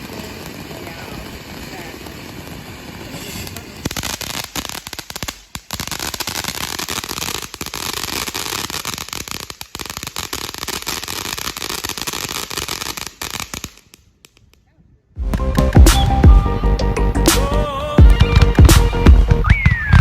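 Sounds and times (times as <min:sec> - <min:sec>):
fountain firework hissing and crackling: 0:00.0 - 0:14.4.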